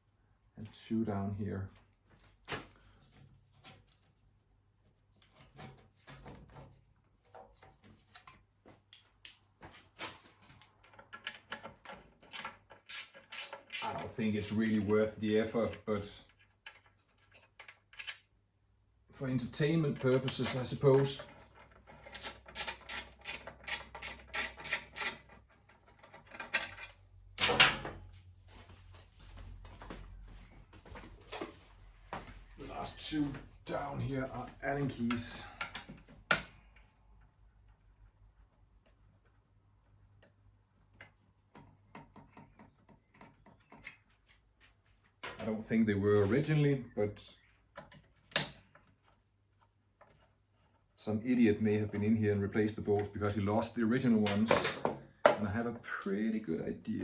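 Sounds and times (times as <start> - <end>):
hand tools clicking and knocking: 19.8 - 27.9.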